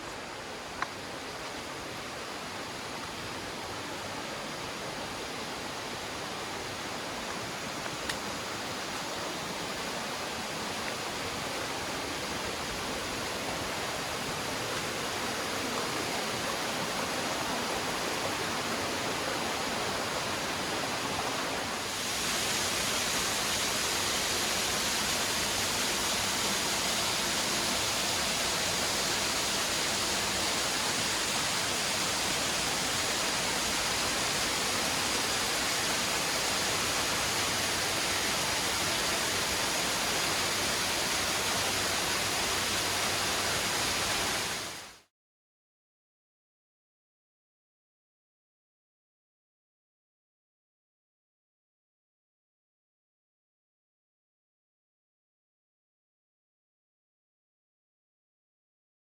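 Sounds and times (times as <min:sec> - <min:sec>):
river water rushing: 0:00.0 - 0:44.9.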